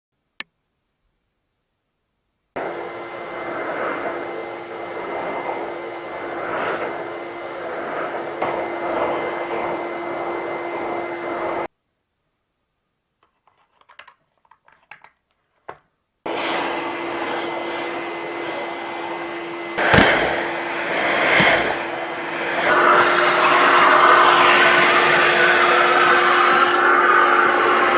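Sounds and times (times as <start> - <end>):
vacuum cleaner motor humming: 2.6 - 11.7, 16.3 - 27.9.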